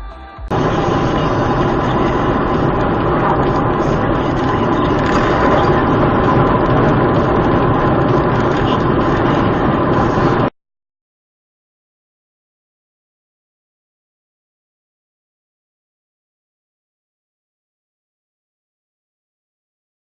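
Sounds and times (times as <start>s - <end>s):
car engine and road noise: 0.5s - 10.5s.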